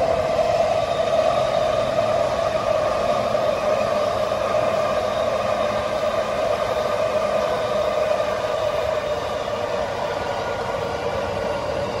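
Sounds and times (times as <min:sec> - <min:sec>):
electric train rumbling past: 0:00.0 - 0:12.0
train whine: 0:00.0 - 0:12.0.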